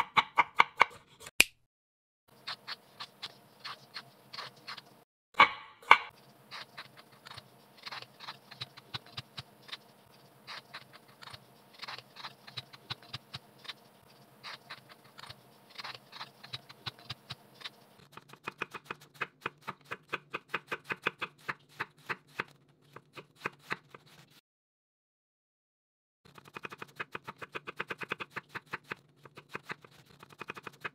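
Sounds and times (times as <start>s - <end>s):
knife chopping carrot on board: 0.0s - 1.5s, 5.4s - 6.7s, 15.2s - 24.0s.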